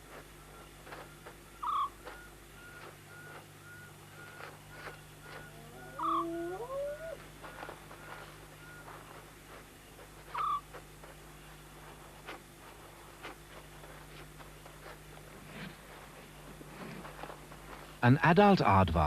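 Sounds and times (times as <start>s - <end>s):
rising whining calls: 1.6s - 9.0s, 10.3s - 10.8s.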